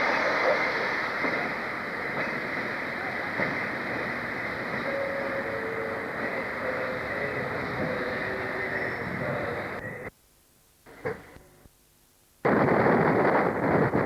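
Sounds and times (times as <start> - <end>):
train rumbling on rails: 0.0 - 10.1, 12.5 - 14.0
faint steady tones: 0.0 - 12.4.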